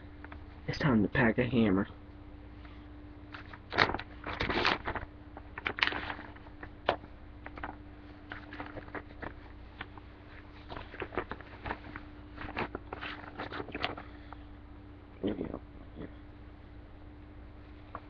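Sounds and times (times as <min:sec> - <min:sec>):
faint steady hum: 0:00.0 - 0:18.0
plastic bag crinkling: 0:03.3 - 0:14.1.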